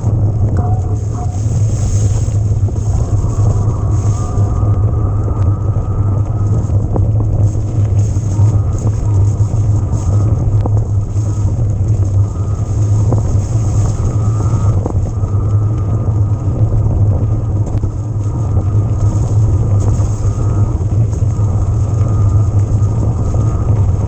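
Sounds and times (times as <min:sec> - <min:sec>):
electric mountain bike rumble: 0:00.0 - 0:24.0.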